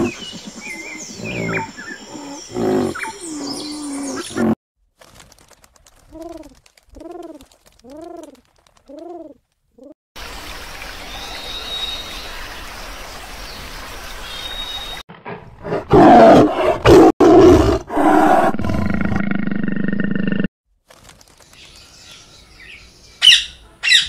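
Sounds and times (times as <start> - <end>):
pigeons cooing: 6.1 - 9.9
tiger roaring and growling: 15.2 - 20.4.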